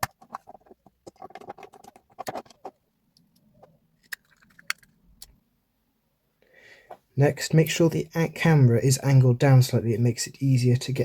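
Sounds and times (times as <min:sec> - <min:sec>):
plastic parts clicking and scraping: 0:00.0 - 0:05.4.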